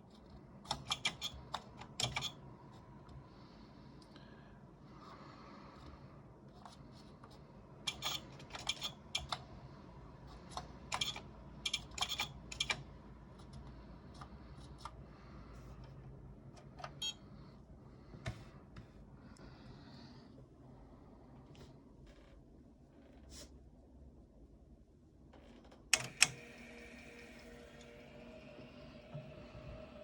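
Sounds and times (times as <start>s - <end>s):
keyboard typing clicks: 10.5s - 12.9s.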